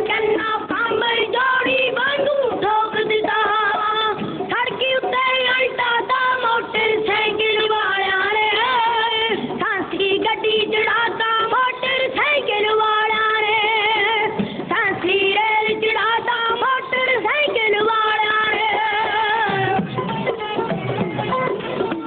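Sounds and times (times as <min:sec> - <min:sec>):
high voice singing folk melody: 0:00.0 - 0:22.0.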